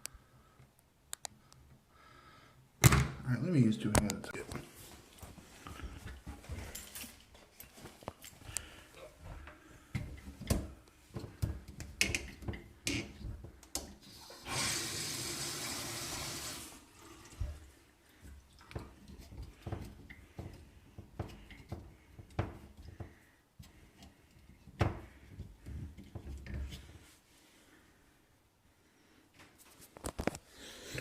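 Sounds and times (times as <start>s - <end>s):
water running from tap: 14.1s - 17.6s.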